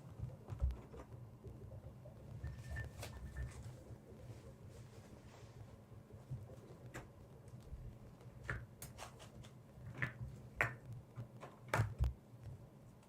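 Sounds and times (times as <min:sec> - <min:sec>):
faint low hum: 0:00.0 - 0:13.0
objects tapping and clicking: 0:08.3 - 0:12.6.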